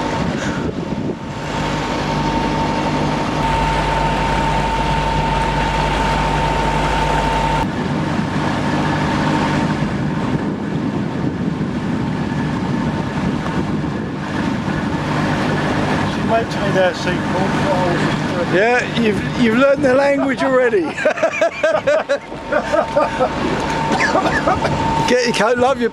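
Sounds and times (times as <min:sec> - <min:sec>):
boat engine droning: 0:00.0 - 0:25.9
thin engine whine: 0:01.2 - 0:10.6, 0:21.4 - 0:25.9.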